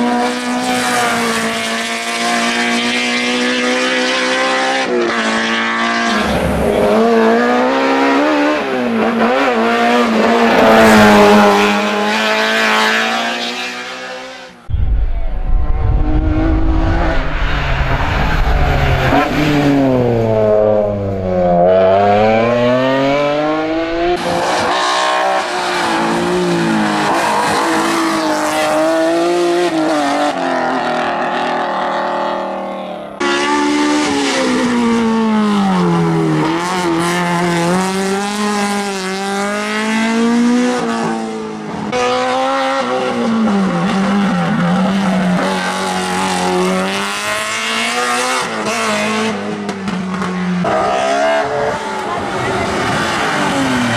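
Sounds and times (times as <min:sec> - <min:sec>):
race car engine at full throttle: 0:00.0 - 0:53.9.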